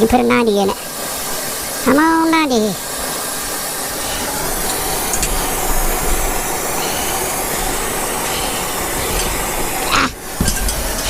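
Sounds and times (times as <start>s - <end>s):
cutting torch flame hissing: 0.0s - 11.0s.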